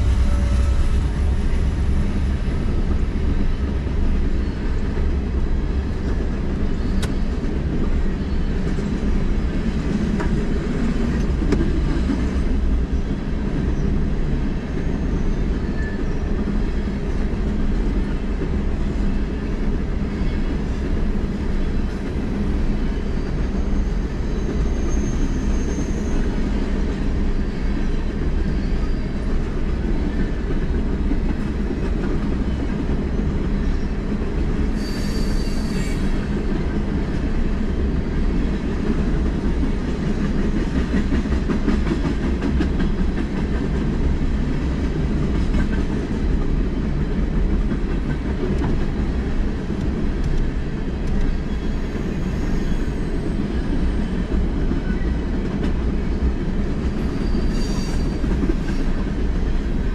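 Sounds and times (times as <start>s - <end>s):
freight train rumbling past: 0.0s - 59.9s
high wheel squeal: 23.1s - 26.4s, 34.8s - 36.3s, 51.3s - 54.2s, 57.0s - 58.3s.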